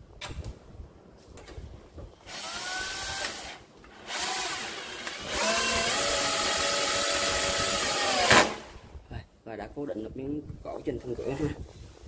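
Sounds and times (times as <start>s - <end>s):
electric drill driving screws: 2.2s - 8.8s.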